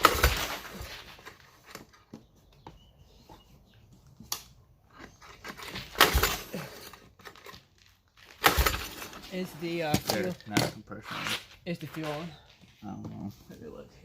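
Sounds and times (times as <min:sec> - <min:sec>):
recoil starter rope zip: 0:10.9 - 0:11.7.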